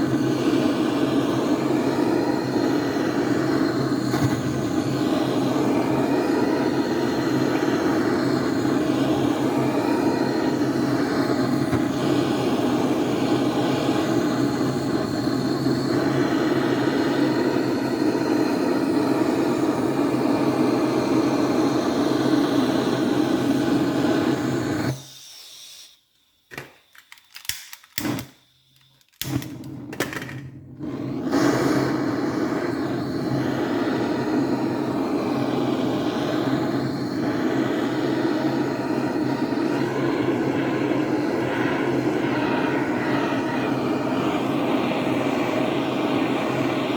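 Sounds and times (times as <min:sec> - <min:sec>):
heat gun blowing: 0:00.0 - 0:26.1, 0:30.7 - 0:46.9
clicks: 0:26.5 - 0:30.5.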